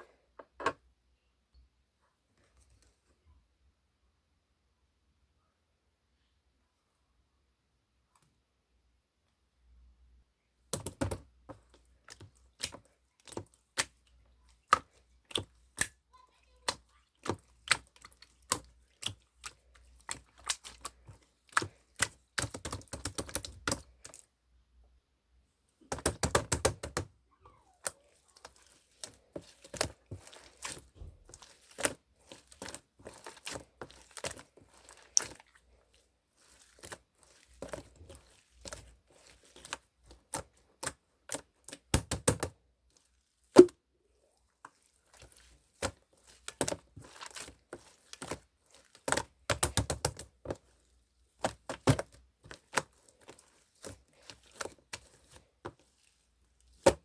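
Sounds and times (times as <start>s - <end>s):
clicks and taps of craft materials: 41.8s - 42.5s.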